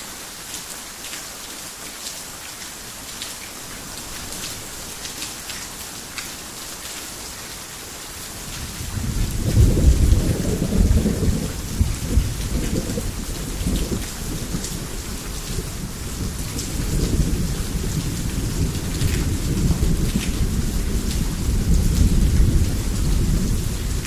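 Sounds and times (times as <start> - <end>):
heavy rain hiss: 0.0 - 24.0
thunder rumbling: 8.6 - 24.0.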